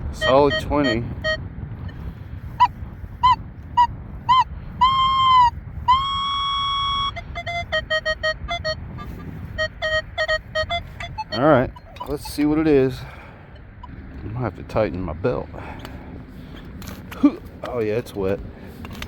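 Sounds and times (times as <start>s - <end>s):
wind rumbling on microphone: 0.0s - 19.0s
metal detector beeps: 0.1s - 1.4s, 4.3s - 12.4s
metal detector steady tone: 0.1s - 2.0s, 4.3s - 12.6s.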